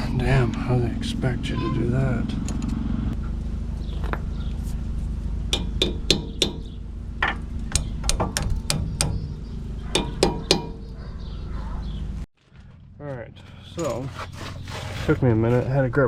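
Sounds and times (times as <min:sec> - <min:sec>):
steady low hum: 0:00.0 - 0:16.0
metal tools knocking and clanking: 0:05.6 - 0:09.3, 0:09.9 - 0:10.8.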